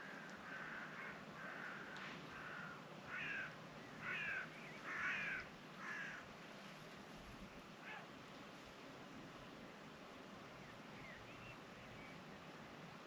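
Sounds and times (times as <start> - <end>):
faint steady hiss: 0.0 - 13.0
large bird making harsh calls: 0.1 - 6.2.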